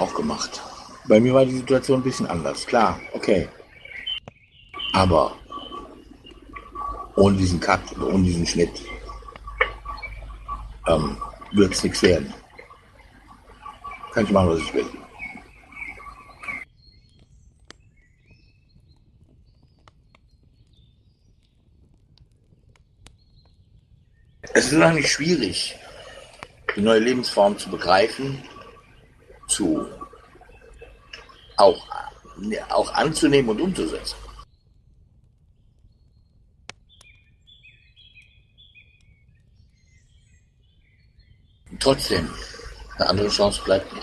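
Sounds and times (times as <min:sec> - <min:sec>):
faint bird chirps: 0:00.0 - 0:34.8, 0:35.5 - 0:44.0
man's voice: 0:04.9 - 0:05.4, 0:07.2 - 0:09.0, 0:10.9 - 0:12.4, 0:14.2 - 0:15.0, 0:24.4 - 0:25.8, 0:26.8 - 0:28.5, 0:29.5 - 0:30.0, 0:31.6 - 0:34.2, 0:41.8 - 0:44.0
low background hiss: 0:24.4 - 0:34.5.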